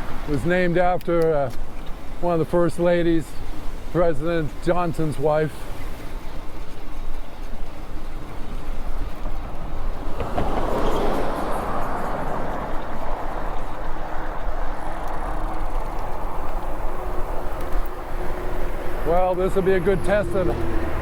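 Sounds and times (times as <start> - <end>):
wind buffeting microphone: 7.8 - 21.0.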